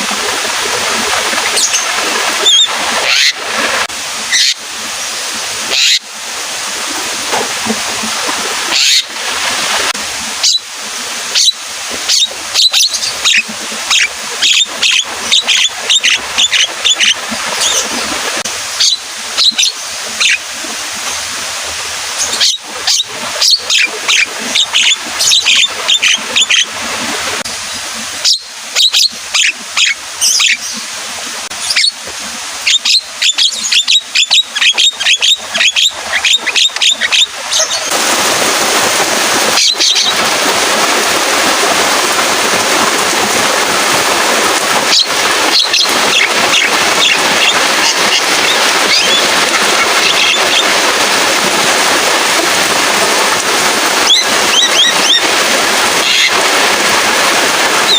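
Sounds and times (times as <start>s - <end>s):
myna shrill calls: 2.4s - 3.4s, 4.3s - 4.6s
rain downpour: 37.2s - 57.9s.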